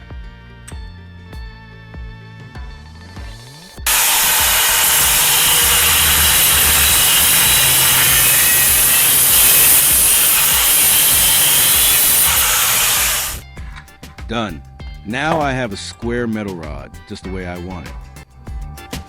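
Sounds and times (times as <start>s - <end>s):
angle grinder cutting metal: 3.9s - 13.4s.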